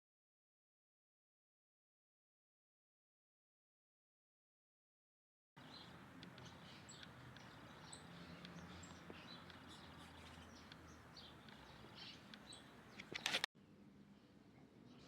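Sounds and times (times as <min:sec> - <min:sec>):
small birds chirping: 0:05.6 - 0:13.5, 0:14.1 - 0:15.0
low background noise: 0:05.6 - 0:15.0.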